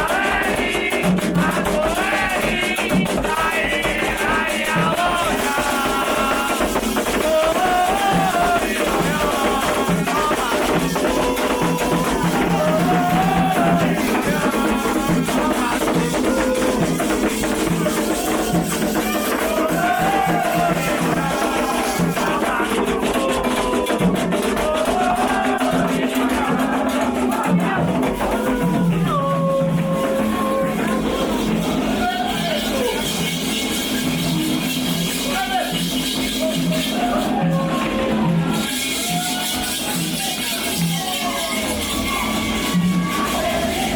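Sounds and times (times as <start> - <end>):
person singing a chant: 0.0 - 33.9
hand percussion: 0.0 - 43.9.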